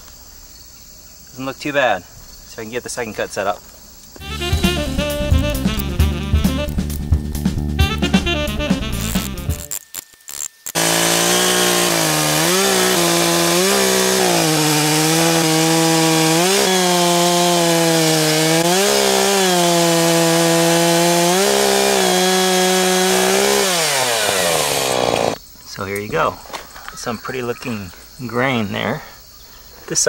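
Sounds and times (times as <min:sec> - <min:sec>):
chainsaw cutting log: 0:09.0 - 0:25.4.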